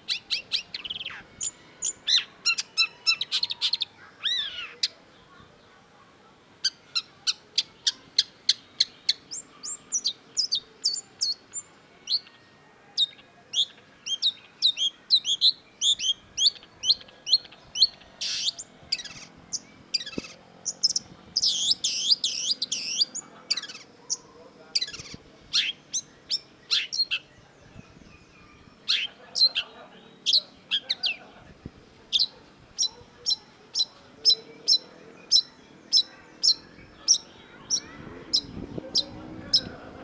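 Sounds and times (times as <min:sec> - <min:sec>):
bird singing sharp chirps: 0:14.0 - 0:31.0.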